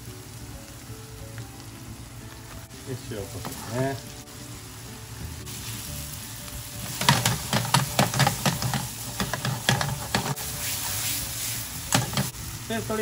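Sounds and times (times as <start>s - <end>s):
food sizzling in a frying pan: 0.0s - 13.0s
spatula scraping and knocking pan: 6.8s - 10.5s, 11.9s - 12.3s.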